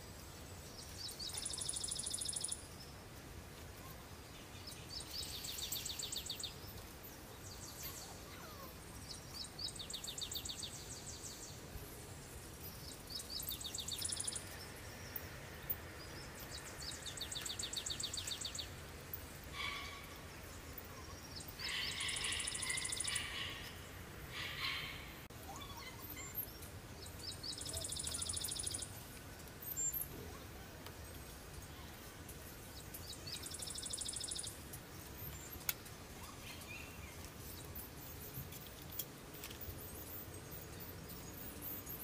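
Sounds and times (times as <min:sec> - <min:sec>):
birds chirping: 0:00.0 - 0:42.0
songbird high trill: 0:21.5 - 0:23.8, 0:27.2 - 0:29.0.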